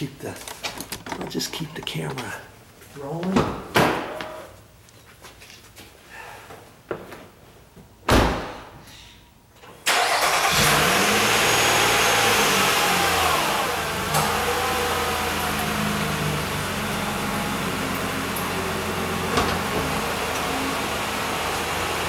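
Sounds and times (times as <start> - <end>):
car engine starting and idling: 9.8 - 22.0.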